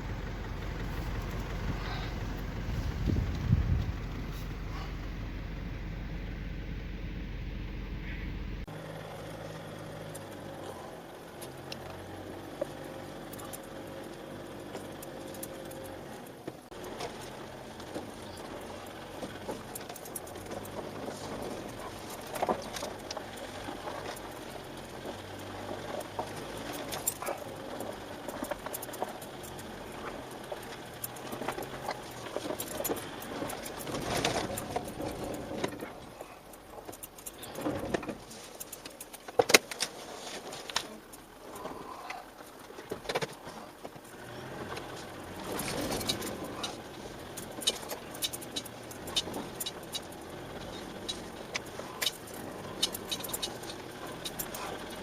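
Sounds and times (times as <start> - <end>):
vehicle engine humming: 0.0 - 55.0
clicks and rattles: 14.7 - 55.0.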